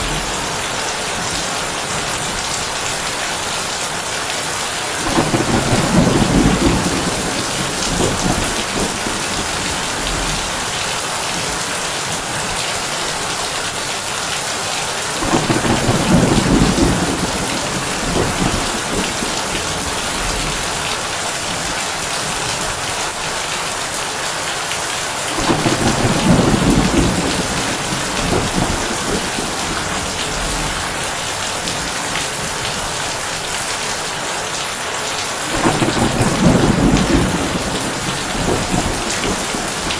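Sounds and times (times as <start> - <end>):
rain drumming on a tin roof: 0.0 - 39.9
low rolls of thunder: 5.0 - 12.6, 15.2 - 22.7, 25.3 - 33.0, 35.4 - 39.9.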